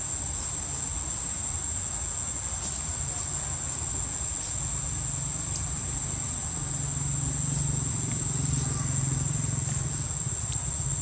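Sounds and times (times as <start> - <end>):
high-pitched insect drone: 3.2 - 11.0.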